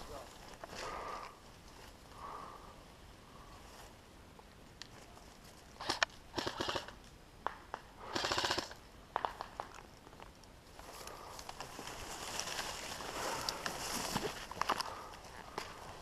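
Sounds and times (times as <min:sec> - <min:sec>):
airsoft gun full-auto burst: 0:05.8 - 0:07.0, 0:08.0 - 0:08.8
rustling: 0:09.2 - 0:16.0.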